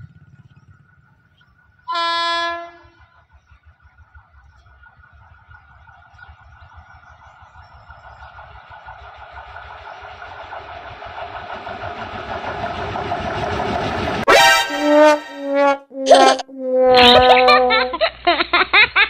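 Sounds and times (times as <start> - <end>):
train rumble and wheel clatter: 0.0 - 15.8
train horn blast: 1.9 - 3.1, 14.3 - 16.4.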